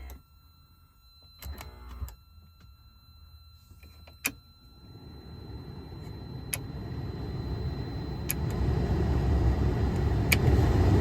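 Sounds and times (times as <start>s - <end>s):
blower fan air rushing: 8.2s - 11.0s.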